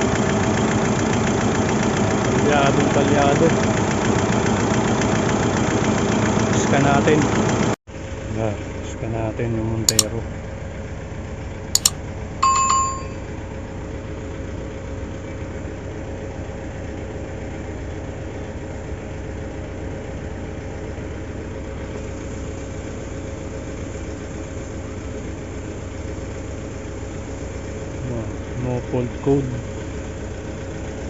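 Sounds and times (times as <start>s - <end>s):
diesel engine idling: 0.0s - 11.6s, 13.4s - 31.0s
short electronic beep: 11.8s - 13.3s.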